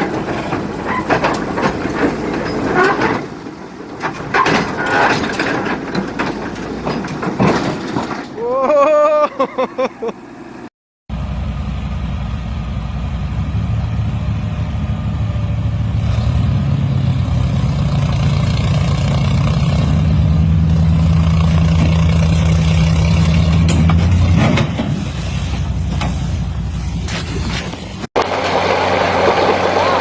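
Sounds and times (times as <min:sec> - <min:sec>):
heavy machinery engine humming: 0:00.0 - 0:30.0.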